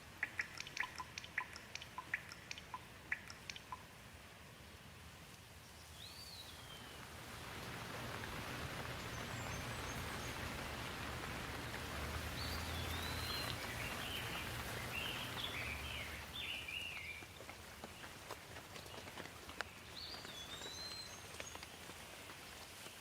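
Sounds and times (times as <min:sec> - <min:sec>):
sharp drop ticks: 0:00.1 - 0:03.8
bird chirping: 0:00.1 - 0:03.9, 0:05.6 - 0:07.1, 0:08.2 - 0:18.1, 0:18.9 - 0:21.6
rain hissing: 0:03.9 - 0:23.0.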